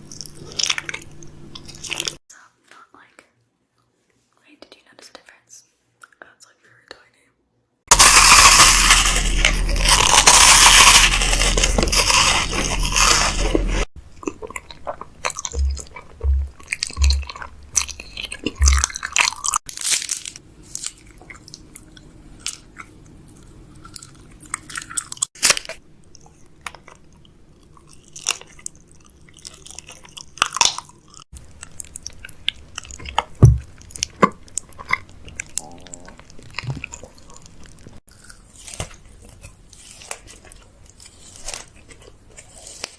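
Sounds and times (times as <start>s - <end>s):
snack packaging crinkling: 0.0s - 2.2s, 7.9s - 22.9s, 23.9s - 26.9s, 36.2s - 42.9s.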